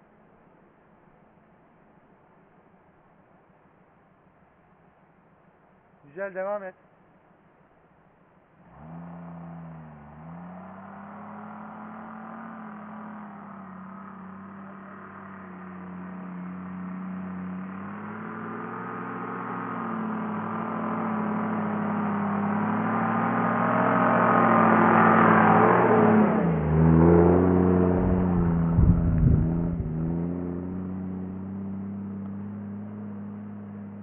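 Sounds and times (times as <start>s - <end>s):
car engine passing: 8.6s - 34.0s
low thumps: 27.5s - 30.6s.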